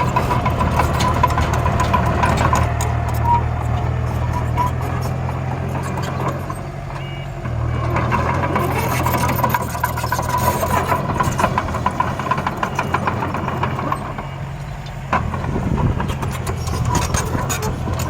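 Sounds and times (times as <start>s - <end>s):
soil and stones clattering: 0.0s - 6.5s
engine drone with whine: 0.0s - 18.0s.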